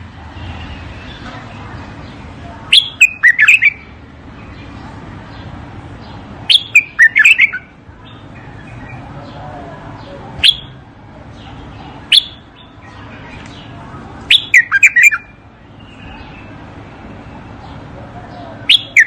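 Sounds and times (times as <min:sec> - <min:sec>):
bird singing whistled notes: 0:02.7 - 0:03.9, 0:06.5 - 0:09.0, 0:10.4 - 0:10.8, 0:12.0 - 0:13.5, 0:14.3 - 0:16.6, 0:18.3 - 0:19.0.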